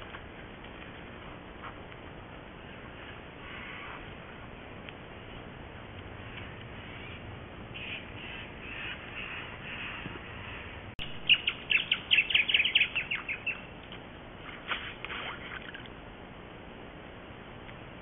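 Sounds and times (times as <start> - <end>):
birds chirping: 2.4 - 13.8.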